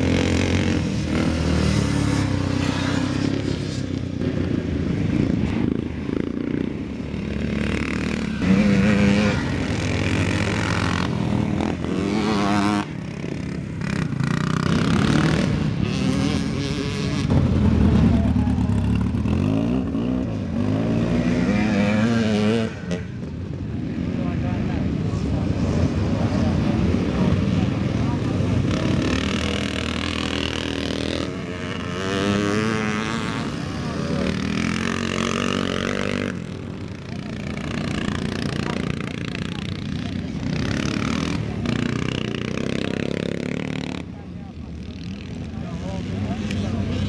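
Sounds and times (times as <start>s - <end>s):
motorcycle engines revving: 0.0s - 47.0s.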